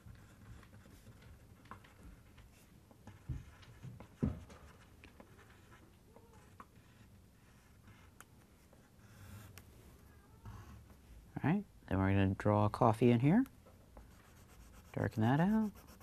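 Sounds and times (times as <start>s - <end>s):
drawing tool scratching paper: 14.2s - 16.0s.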